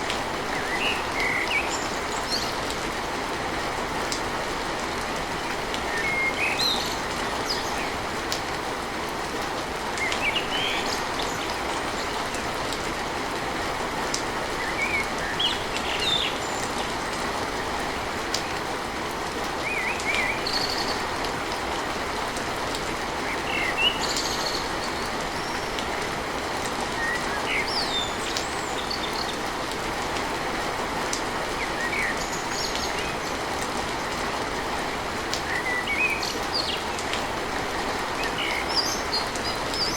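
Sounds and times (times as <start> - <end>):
heavy rain on a tin roof: 0.0 - 39.9
birds chirping: 23.1 - 26.2, 26.8 - 29.6, 31.4 - 33.6, 35.4 - 37.1, 37.9 - 39.9.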